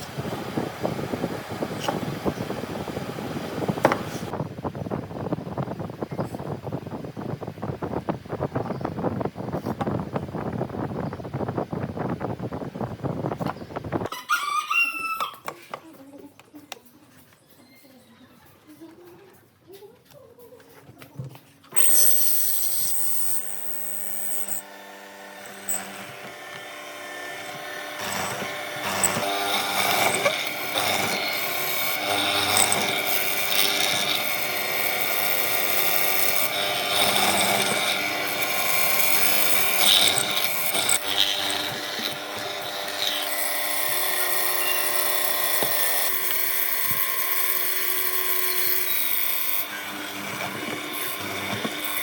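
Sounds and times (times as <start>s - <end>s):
power tool motor whine: 21.8s - 52.0s.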